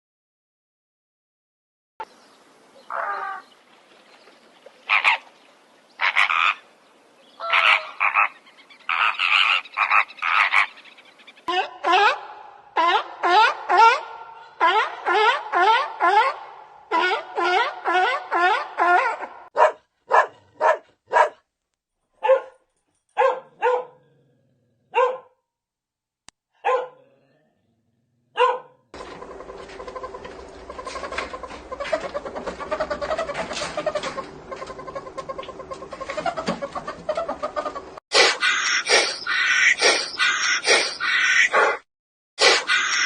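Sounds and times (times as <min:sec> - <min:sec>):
dog barking: 0:17.0 - 0:21.4, 0:22.2 - 0:22.6, 0:23.2 - 0:24.1, 0:24.9 - 0:25.4, 0:26.6 - 0:27.1, 0:28.3 - 0:28.8, 0:41.5 - 0:41.8.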